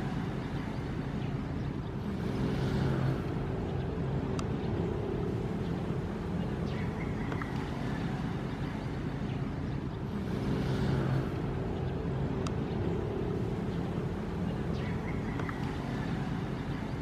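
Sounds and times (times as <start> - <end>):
ocean waves washing in: 0.0 - 17.0.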